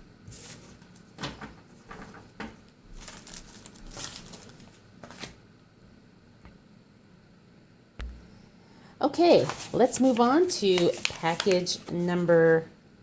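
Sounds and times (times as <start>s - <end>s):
paper packaging rustling: 0.3s - 5.4s, 9.2s - 12.3s.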